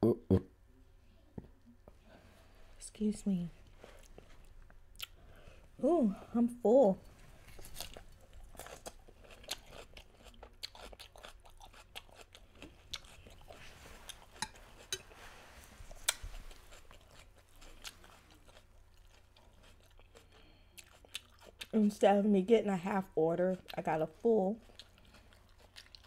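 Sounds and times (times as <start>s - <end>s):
chewing crunchy lettuce: 7.4s - 15.0s, 15.8s - 22.0s, 23.4s - 26.0s.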